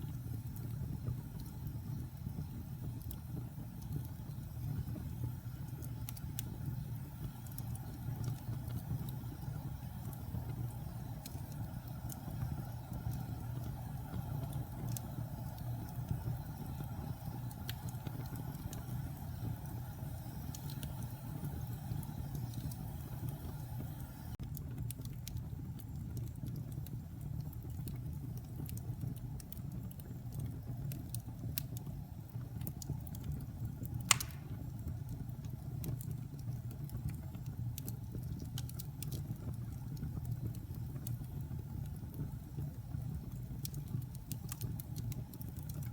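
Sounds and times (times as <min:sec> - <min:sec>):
fire flames rumbling: 0:00.0 - 0:45.9
wood crackling: 0:33.9 - 0:34.8
sharp loud wood pop: 0:34.1 - 0:34.5.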